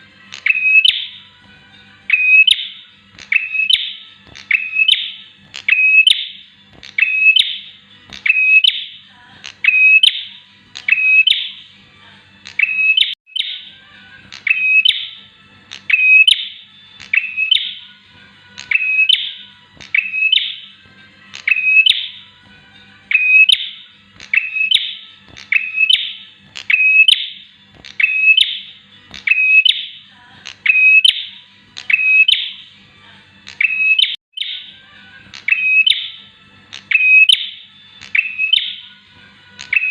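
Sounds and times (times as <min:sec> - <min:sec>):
bird sharp piercing call: 0:02.1 - 0:06.4.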